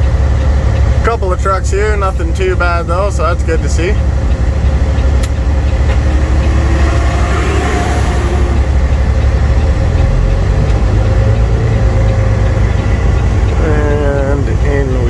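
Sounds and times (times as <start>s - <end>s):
diesel truck engine running: 0.0s - 15.0s
engine hiss: 3.5s - 9.2s.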